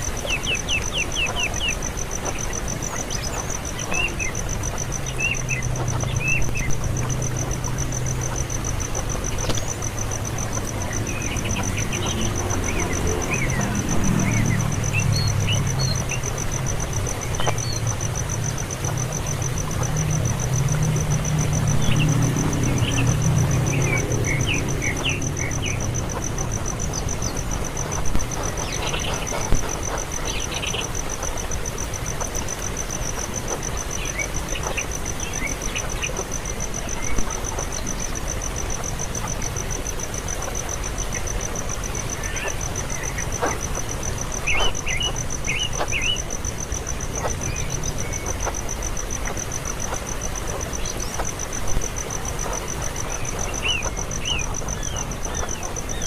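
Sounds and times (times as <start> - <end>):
nestling birds chirping: 0.0 - 38.2, 39.5 - 56.0
pulsing insect trill: 0.0 - 56.0
low engine hum: 5.0 - 29.6.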